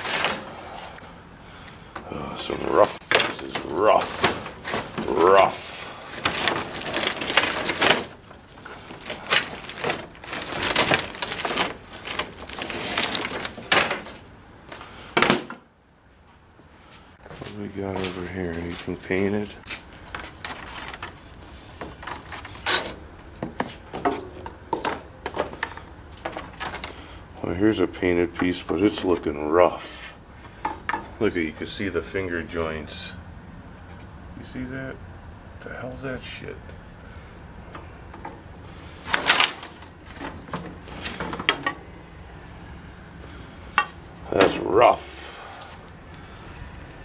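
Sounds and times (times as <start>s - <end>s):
wooden molding scraping: 0.0s - 1.0s, 2.4s - 14.3s, 17.3s - 27.1s
wooden moldings knocking together: 20.0s - 27.0s, 39.1s - 41.8s.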